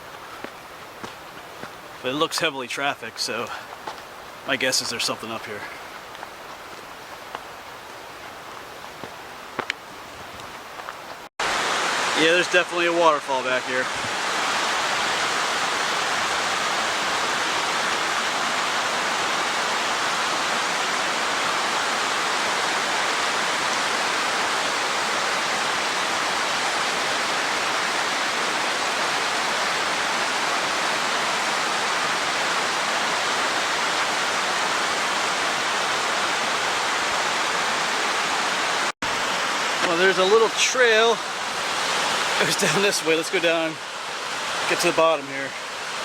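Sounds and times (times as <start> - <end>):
waterfall rushing: 11.4 - 46.0.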